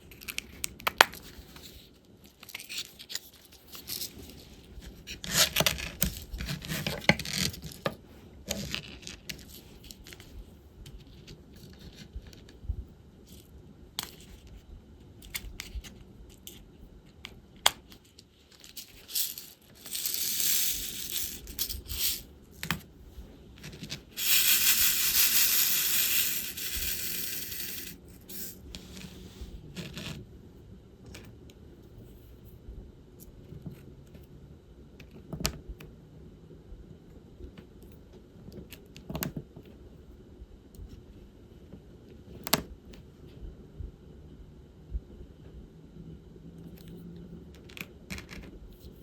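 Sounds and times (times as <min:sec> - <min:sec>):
resin beads rattling in plastic tray: 0:18.8 - 0:22.3, 0:23.6 - 0:28.6.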